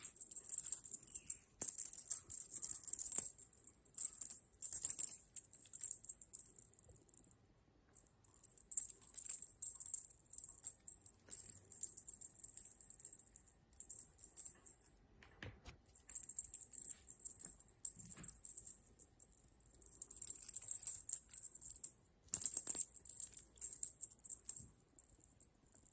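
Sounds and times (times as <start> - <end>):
jingling cat toy rattling: 0.0 - 6.6, 8.3 - 14.8, 19.7 - 25.9.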